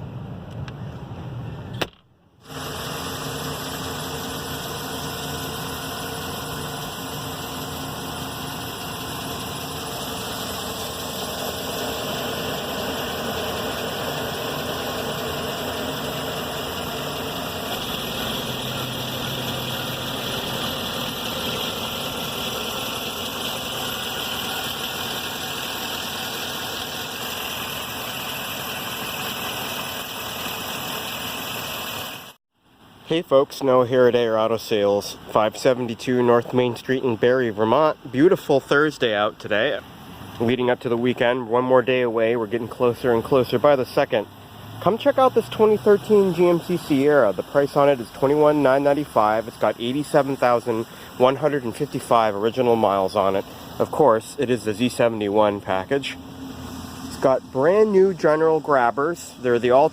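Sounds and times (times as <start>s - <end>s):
sharp click: 1.7s - 2.1s
engine idling: 2.4s - 33.0s, 34.5s - 59.9s.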